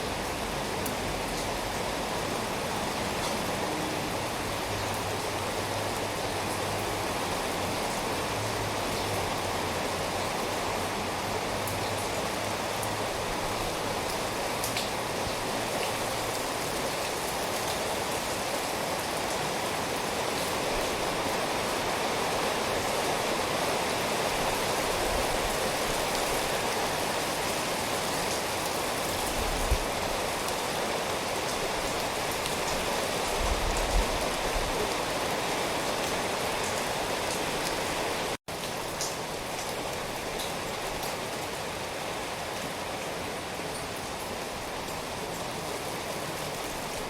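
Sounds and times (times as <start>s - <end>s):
steady rain falling: 0.0s - 47.0s.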